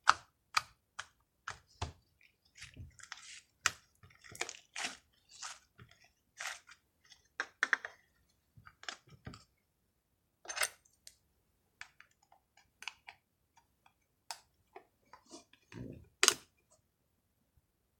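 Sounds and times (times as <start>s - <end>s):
slime squishing: 0.0s - 7.3s.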